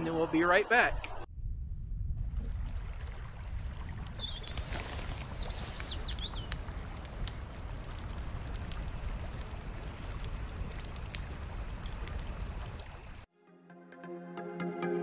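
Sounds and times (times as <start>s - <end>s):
steady low rumble: 1.0s - 3.4s
birds chirping: 3.6s - 6.6s.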